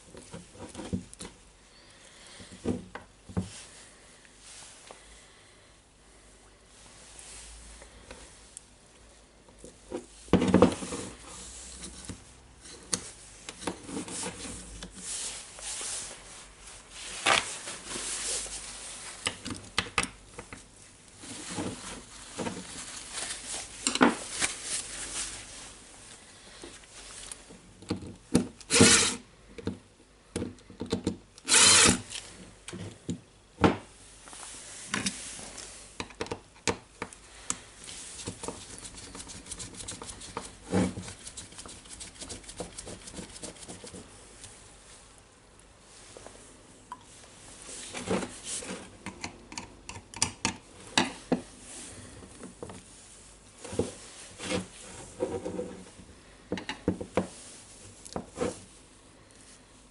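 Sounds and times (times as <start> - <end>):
scraping and rubbing on metal parts: 10.0 - 19.2, 28.7 - 29.2, 31.4 - 32.2, 37.9 - 44.2, 52.9 - 56.0.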